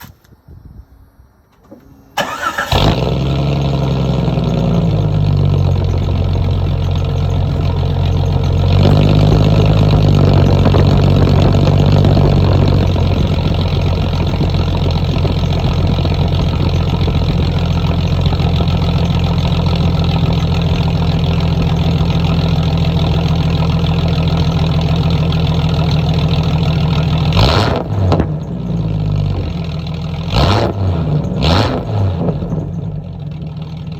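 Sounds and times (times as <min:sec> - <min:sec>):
engine revs blipped: 0:01.9 - 0:20.7, 0:25.8 - 0:33.1
car engine idling loudly: 0:02.2 - 0:33.9.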